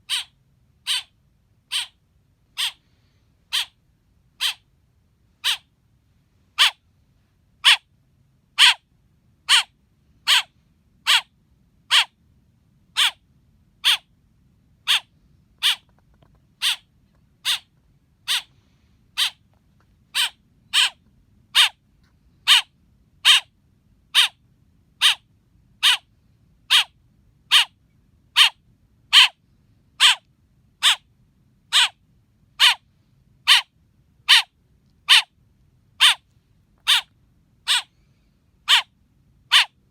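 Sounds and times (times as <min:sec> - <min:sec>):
baby blackbird chirping: 0:00.0 - 0:01.1, 0:01.7 - 0:02.0, 0:02.6 - 0:02.8, 0:03.5 - 0:03.8, 0:04.4 - 0:04.6, 0:06.6 - 0:06.8, 0:08.6 - 0:08.8, 0:09.5 - 0:09.7, 0:10.3 - 0:11.3, 0:11.9 - 0:12.1, 0:13.0 - 0:13.2, 0:14.8 - 0:15.9, 0:16.6 - 0:16.8, 0:17.4 - 0:17.7, 0:18.3 - 0:18.5, 0:20.1 - 0:21.8, 0:22.4 - 0:23.5, 0:24.1 - 0:24.4, 0:25.0 - 0:25.2, 0:25.8 - 0:26.1, 0:26.7 - 0:26.9, 0:27.5 - 0:27.7, 0:28.4 - 0:29.4, 0:30.0 - 0:30.2, 0:30.8 - 0:31.0, 0:31.7 - 0:32.0, 0:32.6 - 0:32.8, 0:33.5 - 0:33.7, 0:34.3 - 0:34.5, 0:35.1 - 0:35.3, 0:36.0 - 0:36.2, 0:36.8 - 0:37.1, 0:37.7 - 0:37.9, 0:38.7 - 0:38.9, 0:39.5 - 0:39.8.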